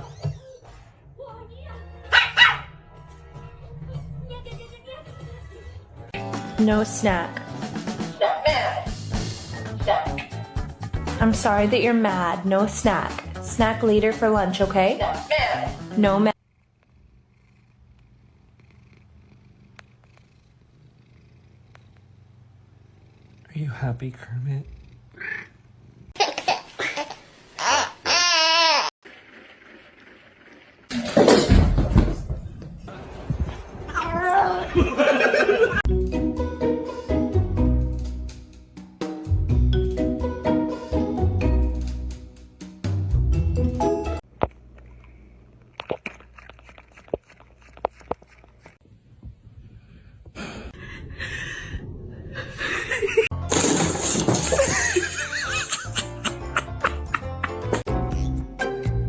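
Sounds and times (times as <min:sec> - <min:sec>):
music: 0:01.0 - 0:16.3, 0:35.9 - 0:44.2, 0:53.3 - 0:59.0
people laughing: 0:34.6 - 0:35.9, 0:52.4 - 0:53.3, 0:54.4 - 0:57.8.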